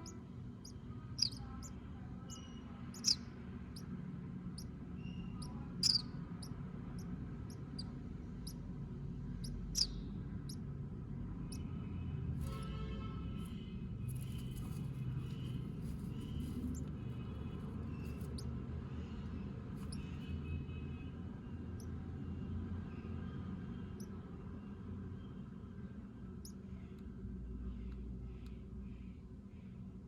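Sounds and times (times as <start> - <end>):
sparrow nestlings cheeping: 0.0 - 3.9, 4.6 - 8.6, 9.4 - 10.6
steady low rumble: 0.0 - 12.5, 13.2 - 20.1.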